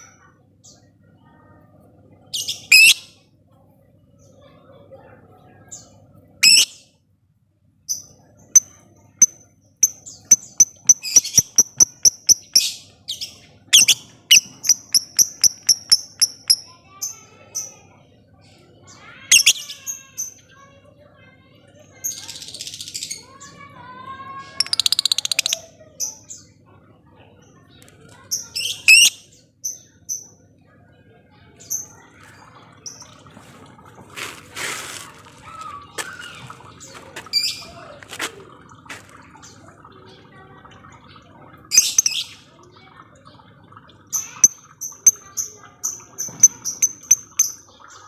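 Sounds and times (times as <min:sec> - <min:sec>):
lovebird chattering: 0:02.5 - 0:03.0, 0:08.6 - 0:12.8, 0:13.8 - 0:16.7, 0:24.6 - 0:25.6, 0:28.6 - 0:29.2, 0:45.9 - 0:47.6.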